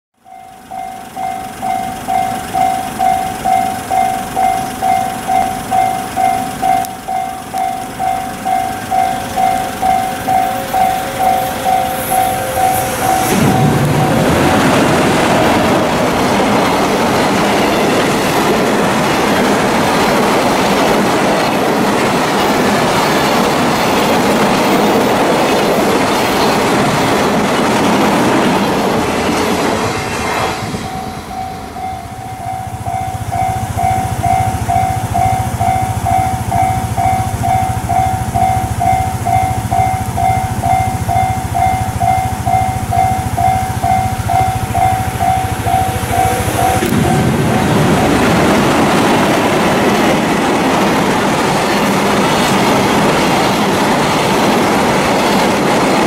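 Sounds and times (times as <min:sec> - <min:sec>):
pulsing electronic warning tone: 0:00.2 - 0:22.5, 0:29.2 - 0:50.8
train wheels clattering on bridge: 0:00.3 - 0:56.0.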